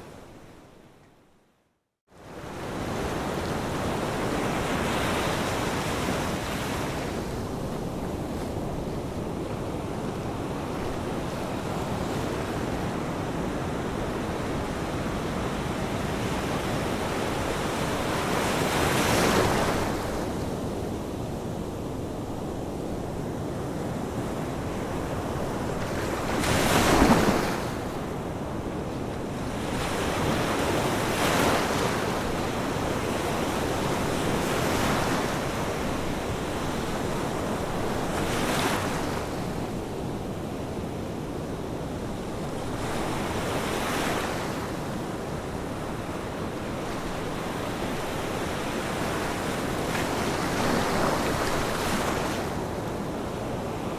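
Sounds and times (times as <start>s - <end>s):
ocean waves crashing on shore: 23.3s - 53.9s.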